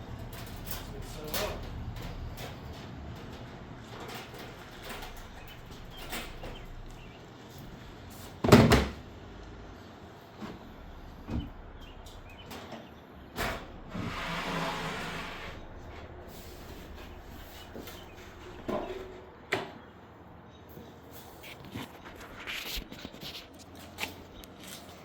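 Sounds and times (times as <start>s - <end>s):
sliding scrape: 13.9s - 18.2s.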